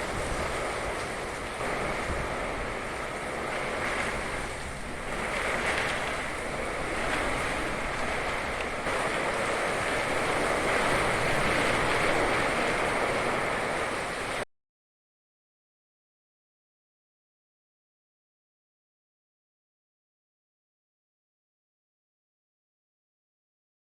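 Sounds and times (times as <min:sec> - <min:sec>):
heavy rain: 0:00.0 - 0:14.4
wind buffeting microphone: 0:00.0 - 0:14.4.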